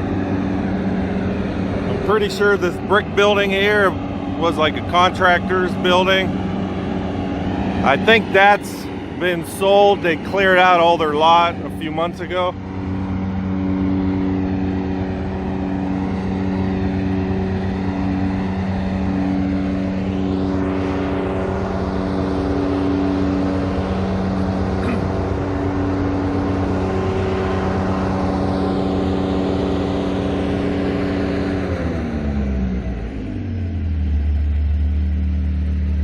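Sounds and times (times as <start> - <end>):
road traffic: 0.0 - 36.0
vehicle engine running: 0.0 - 36.0.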